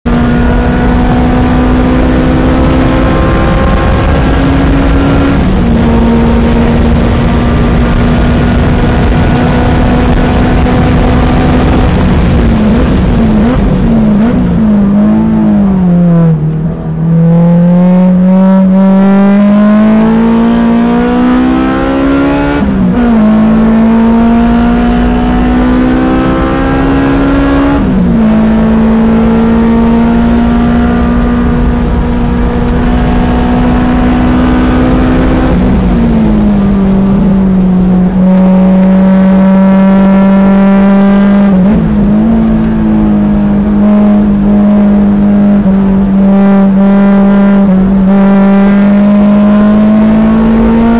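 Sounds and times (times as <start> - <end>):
car engine revving and shifting: 0.0 - 50.9
wind and road noise: 0.0 - 50.9.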